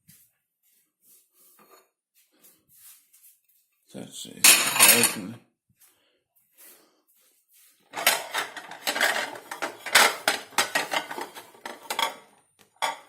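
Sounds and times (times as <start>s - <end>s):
dishes and cutlery clattering: 4.4s - 5.4s, 8.0s - 13.0s.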